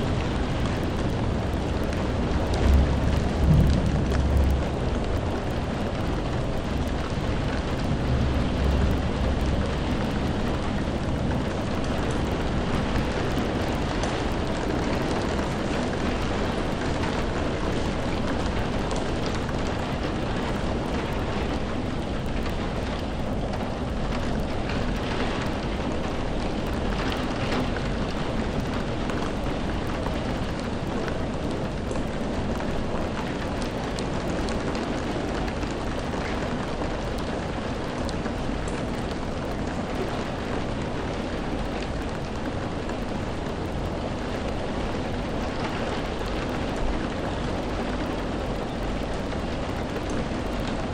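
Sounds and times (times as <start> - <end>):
rain hiss: 0.0 - 50.9
raindrops hitting a surface: 0.0 - 50.9.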